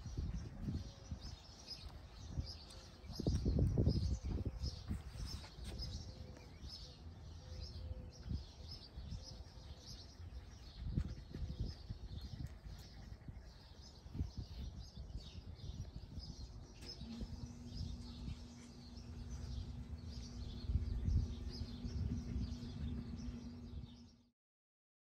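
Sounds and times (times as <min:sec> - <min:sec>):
small birds chirping: 0:00.0 - 0:24.3
steady low hum: 0:00.0 - 0:24.3
low rumble: 0:16.4 - 0:24.3.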